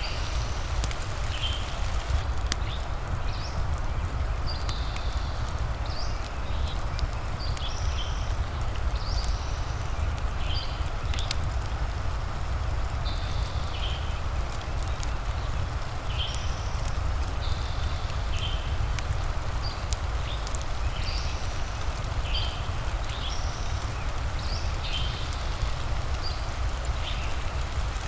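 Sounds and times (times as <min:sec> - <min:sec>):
low rumble: 0:00.0 - 0:02.5
rain hissing: 0:00.0 - 0:05.6, 0:11.1 - 0:28.0
fireplace crackling and popping: 0:00.0 - 0:28.0.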